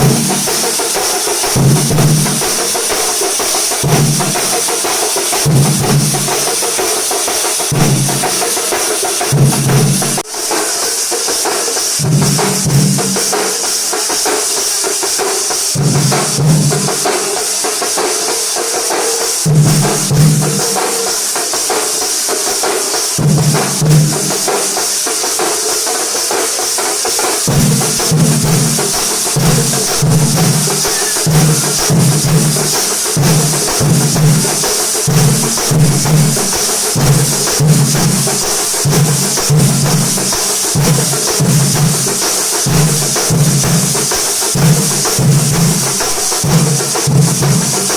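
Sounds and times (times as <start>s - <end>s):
deep drum strokes: 0.0s - 10.4s, 27.5s - 47.9s
jingling cymbals: 0.0s - 47.9s
percussion band playing: 0.0s - 47.9s.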